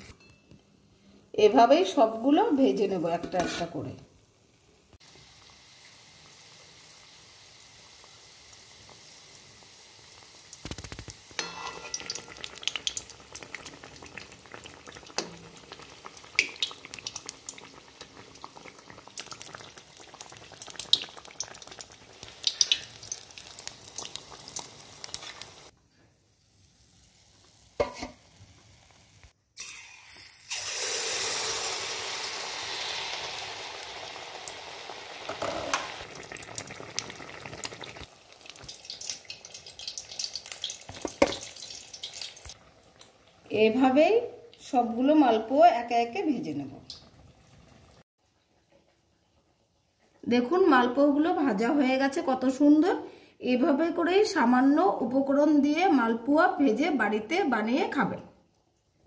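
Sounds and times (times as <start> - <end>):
batter deep-frying in oil: 1.4 - 53.0
batter poured into hot oil: 4.8 - 43.5.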